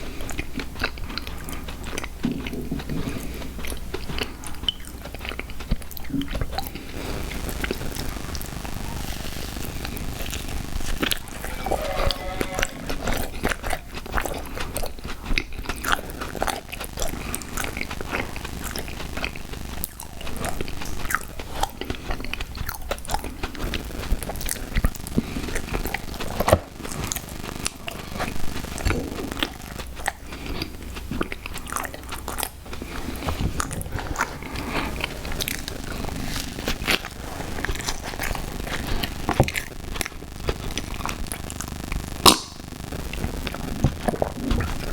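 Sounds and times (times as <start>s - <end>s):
chewing and crunching cereal: 0.0s - 44.9s.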